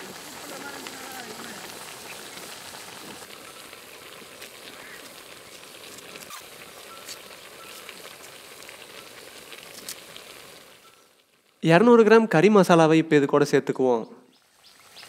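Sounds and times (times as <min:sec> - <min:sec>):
small pops and crackles: 0:00.0 - 0:11.6
food sizzling in a pot: 0:00.0 - 0:11.7, 0:14.3 - 0:15.0.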